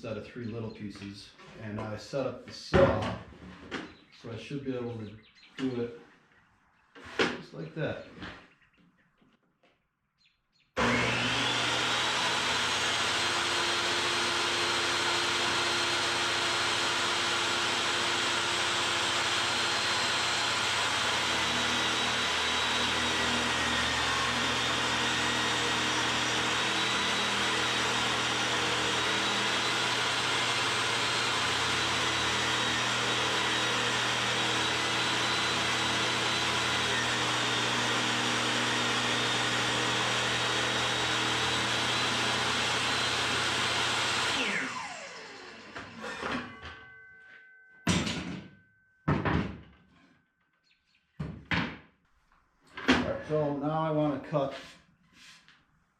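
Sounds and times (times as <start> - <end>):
table saw cutting wood: 10.8 - 46.7.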